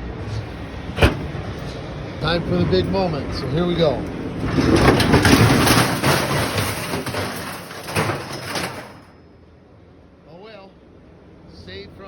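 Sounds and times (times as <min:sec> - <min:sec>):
metal scraping and clanking: 0:00.2 - 0:09.2.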